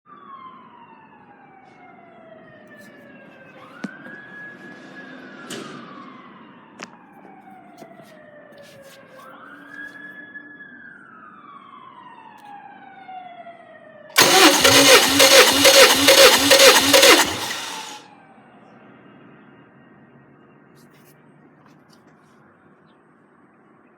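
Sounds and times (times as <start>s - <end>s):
engine starting and running: 14.2s - 18.0s.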